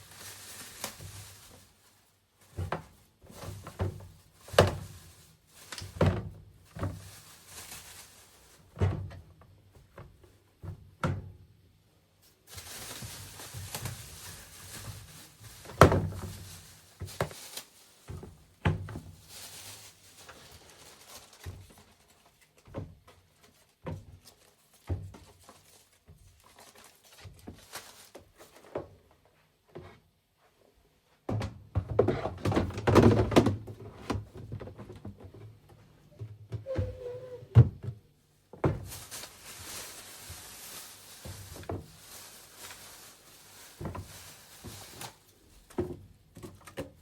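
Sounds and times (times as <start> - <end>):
objects being handled and set down: 12.5 - 30.1, 31.3 - 47.0.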